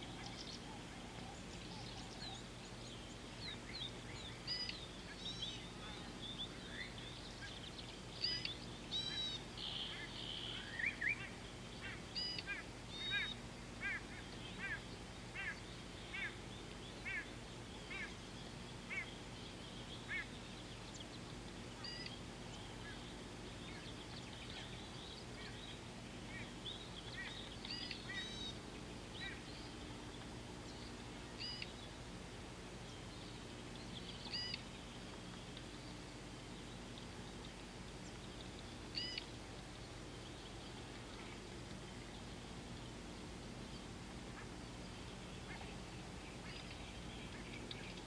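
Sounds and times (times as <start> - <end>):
birds chirping and whistling: 0.0 - 31.9, 32.9 - 39.4
faint low hum: 0.0 - 48.0
bird honking calls: 8.2 - 16.4, 17.0 - 18.2, 20.0 - 20.4, 21.8 - 22.2, 26.3 - 28.6, 34.3 - 34.6, 39.0 - 39.3.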